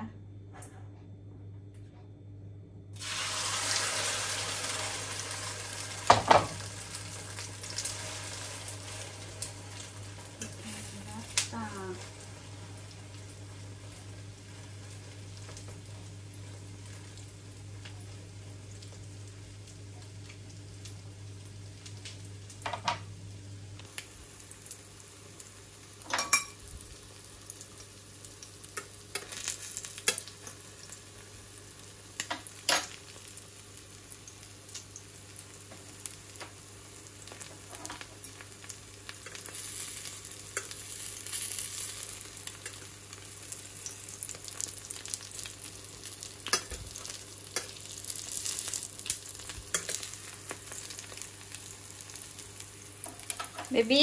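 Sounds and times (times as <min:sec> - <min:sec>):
omelette sizzling in a pan: 0:03.0 - 0:54.0.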